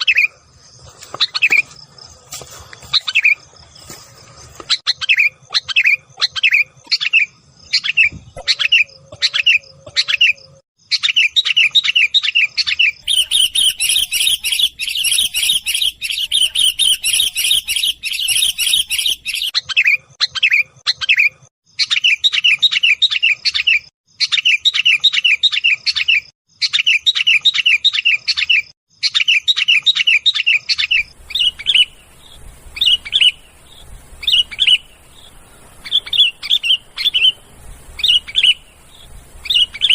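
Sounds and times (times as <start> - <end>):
bulbuls chattering calls: 30.9 - 39.9.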